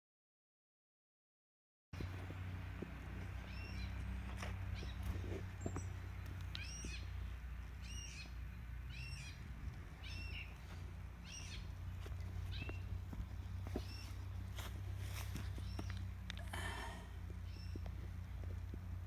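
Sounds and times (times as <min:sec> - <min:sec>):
bird chirping: 0:02.0 - 0:16.2, 0:17.3 - 0:18.4
faint clicks: 0:15.8 - 0:16.5.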